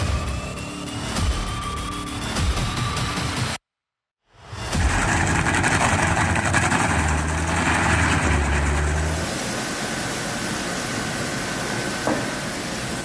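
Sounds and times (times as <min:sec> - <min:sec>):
engine running steadily: 0:04.8 - 0:13.0.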